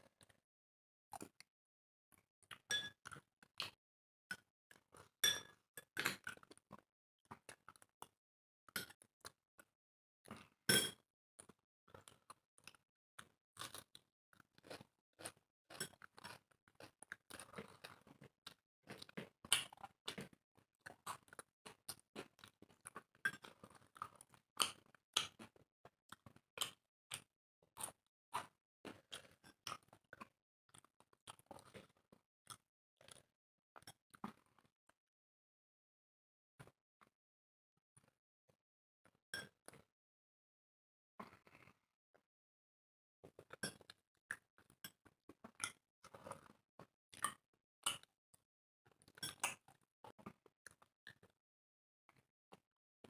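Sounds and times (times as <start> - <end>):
wet chewing and crunching: 11.4 - 34.7, 49.0 - 51.3.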